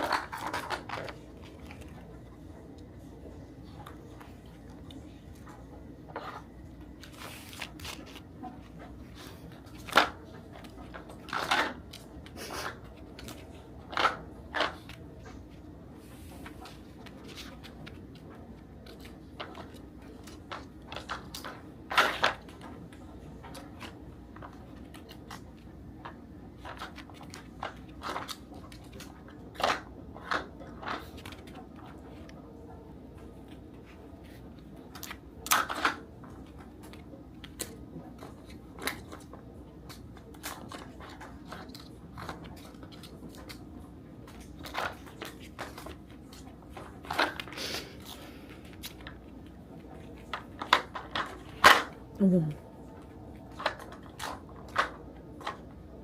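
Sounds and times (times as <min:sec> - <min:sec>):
rustling toy: 0:00.0 - 0:56.0
dog crunching treats: 0:16.4 - 0:52.1, 0:52.8 - 0:56.0.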